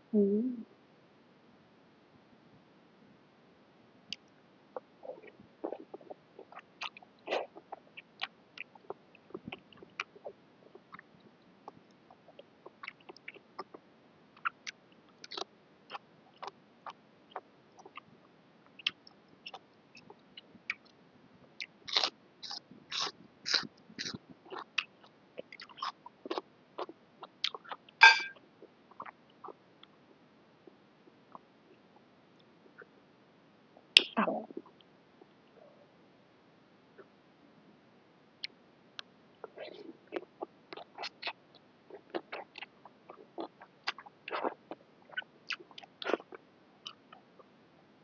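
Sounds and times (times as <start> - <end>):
person chewing food: 14.4 - 18.0, 21.6 - 29.6, 40.1 - 47.1.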